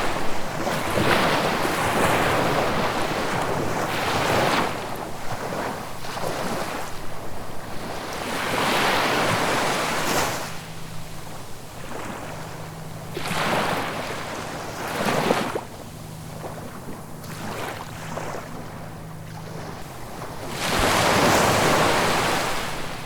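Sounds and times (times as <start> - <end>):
ocean waves washing in: 0.0 - 23.0
faint low hum: 9.3 - 23.0.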